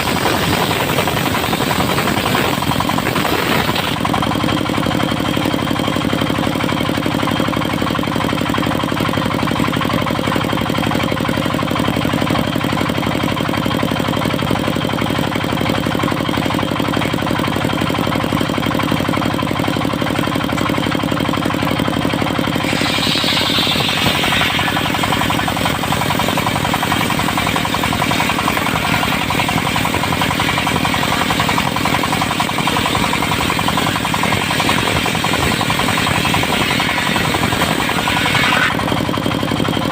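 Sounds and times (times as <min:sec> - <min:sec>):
diesel engine running: 0:00.0 - 0:39.9
high hissing: 0:22.6 - 0:38.8.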